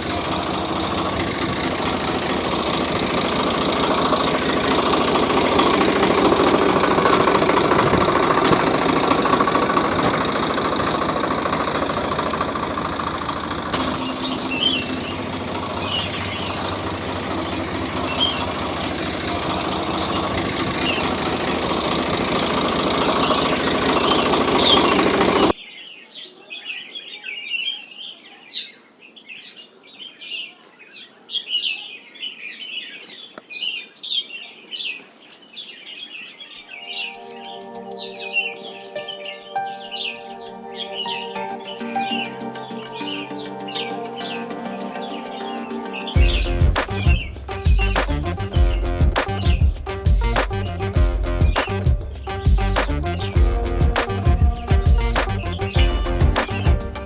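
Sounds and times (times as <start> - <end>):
tractor motor running: 0.0 - 25.6, 37.2 - 57.0
birds chirping: 0.0 - 57.0.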